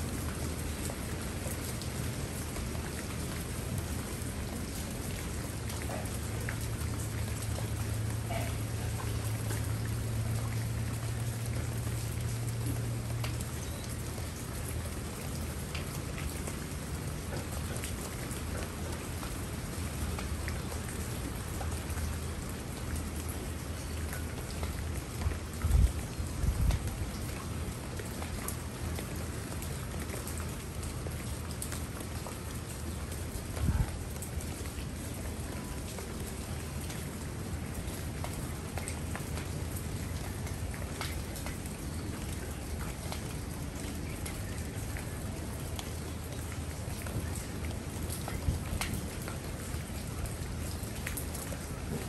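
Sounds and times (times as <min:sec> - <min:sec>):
rain pattering on plants: 0:00.0 - 0:52.0.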